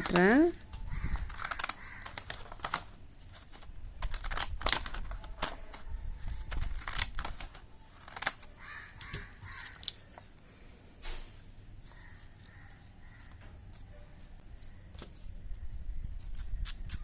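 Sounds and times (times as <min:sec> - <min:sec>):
scissors snipping paper: 0:01.1 - 0:02.9, 0:03.5 - 0:10.1.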